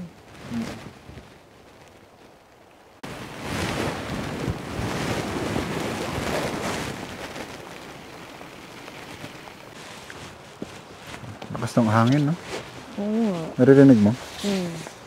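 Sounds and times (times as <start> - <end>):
strong wind on microphone: 3.0 - 9.8.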